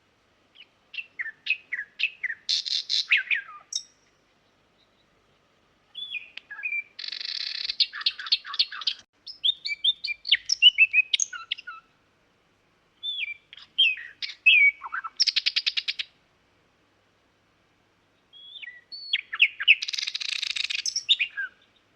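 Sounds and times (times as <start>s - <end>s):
nightingale singing: 0.5s - 12.0s, 13.0s - 16.2s, 18.1s - 21.9s.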